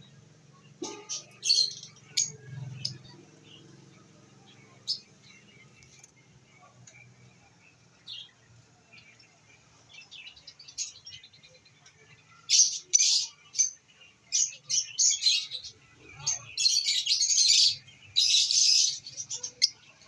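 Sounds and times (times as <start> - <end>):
lovebirds chirping: 0.0 - 20.0.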